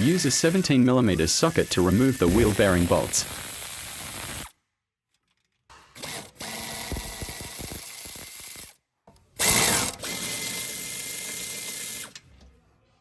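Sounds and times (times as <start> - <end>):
power tool whining: 0.0 - 4.5, 6.0 - 8.7.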